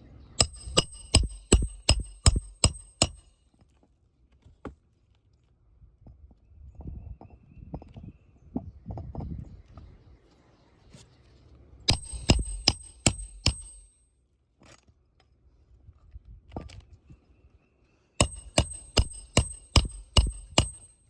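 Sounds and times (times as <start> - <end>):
hammer striking nails: 0.4 - 3.4, 11.9 - 14.0, 18.2 - 21.0.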